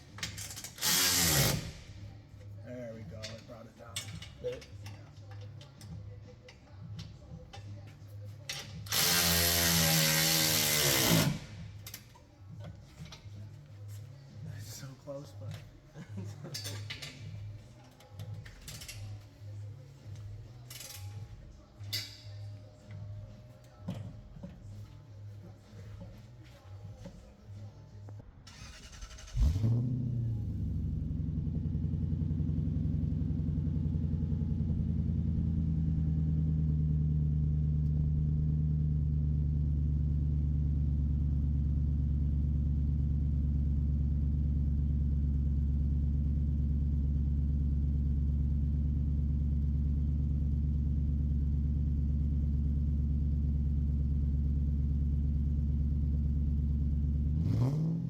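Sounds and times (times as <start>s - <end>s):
car engine starting and idling: 0.0s - 58.0s
engine revving: 0.4s - 2.0s, 8.8s - 11.8s, 28.5s - 32.6s, 57.1s - 58.0s.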